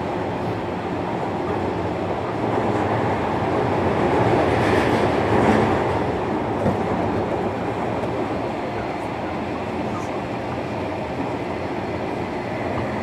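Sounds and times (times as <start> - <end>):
train wheels rumbling on rails: 0.0 - 13.0
rail-joint clatter: 4.0 - 8.2.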